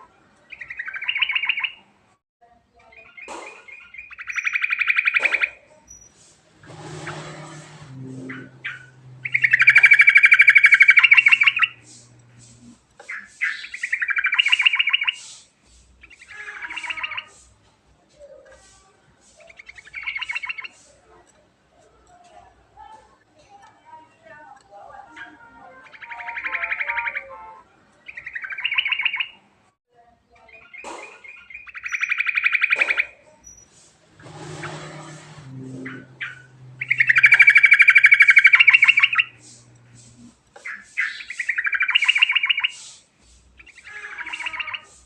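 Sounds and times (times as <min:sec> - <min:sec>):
bird chirps: 0:00.5 - 0:01.8, 0:02.8 - 0:15.4, 0:16.0 - 0:17.5, 0:19.3 - 0:20.9, 0:25.1 - 0:27.4, 0:28.0 - 0:29.4, 0:30.4 - 0:43.0, 0:43.6 - 0:45.0
bird singing rattling trills: 0:00.5 - 0:01.8, 0:02.9 - 0:15.4, 0:16.0 - 0:17.5, 0:19.4 - 0:20.8, 0:28.0 - 0:29.4, 0:30.5 - 0:45.0
brief noisy burst: 0:06.0 - 0:12.8, 0:33.6 - 0:40.4.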